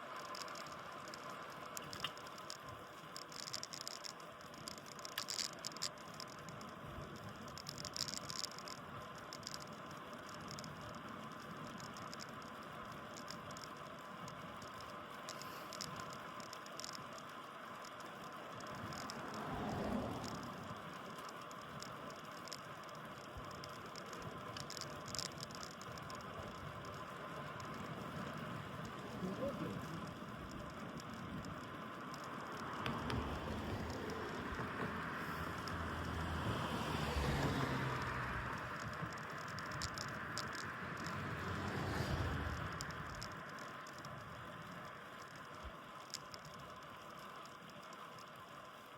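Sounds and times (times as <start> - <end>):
light ticks and rattles: 0.0 - 48.9
road noise: 3.2 - 45.6
bicycle tyres hissing on road: 15.3 - 15.8, 18.5 - 20.7, 32.3 - 43.5.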